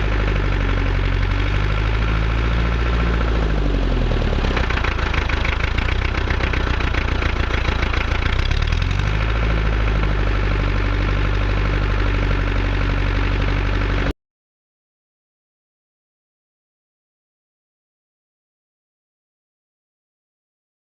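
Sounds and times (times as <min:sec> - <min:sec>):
tractor diesel engine knocking: 0:00.0 - 0:14.1.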